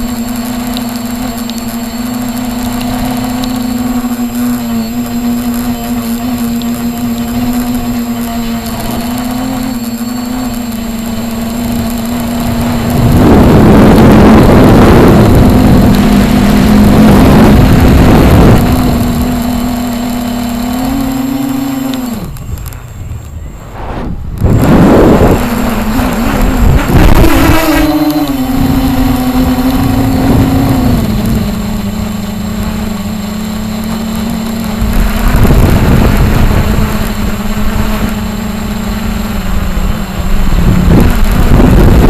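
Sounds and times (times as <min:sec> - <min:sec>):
radio-controlled helicopter running: 0:00.0 - 0:42.0
loud rushing noise: 0:10.8 - 0:19.8, 0:22.1 - 0:38.2.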